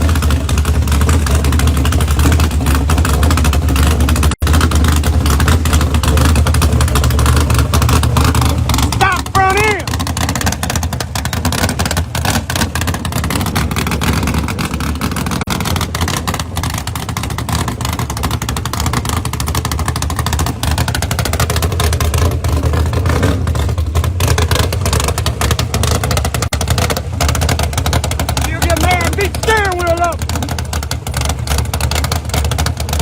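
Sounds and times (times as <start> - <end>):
loud car engine and exhaust: 0.0 - 33.0.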